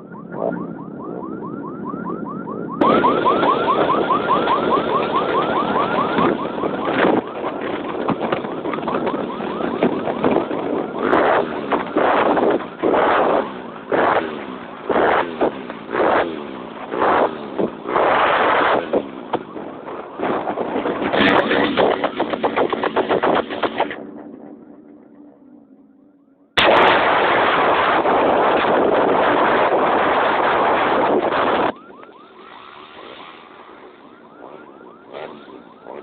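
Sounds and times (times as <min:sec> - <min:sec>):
warbling siren-like tone: 0:00.0 - 0:36.0.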